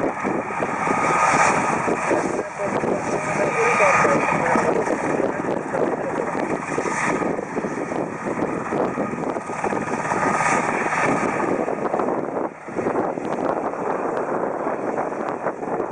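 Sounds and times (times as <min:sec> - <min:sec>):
helicopter rotor chop: 0:00.0 - 0:15.9.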